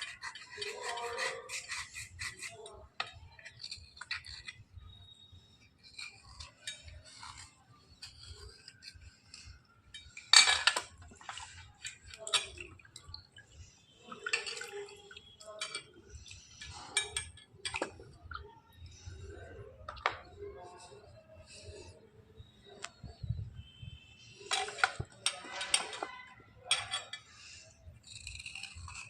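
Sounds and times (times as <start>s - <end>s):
slate pencils clinking: 0.0s - 4.8s, 5.4s - 18.2s, 24.2s - 29.0s
slate pencils scraping: 0.0s - 18.2s, 18.8s - 22.0s, 24.2s - 29.0s.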